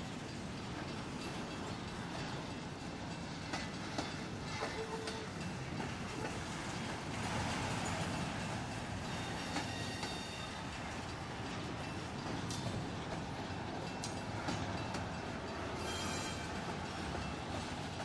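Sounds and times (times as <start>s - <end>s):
freight train wheels rumbling on rail: 0.0s - 18.0s
high wheel squeals: 15.8s - 16.5s.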